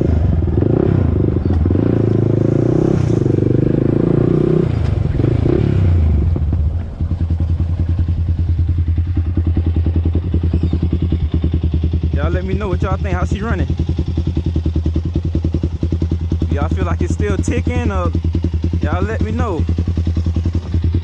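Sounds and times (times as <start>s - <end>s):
atv engine running and idling: 0.0s - 21.0s.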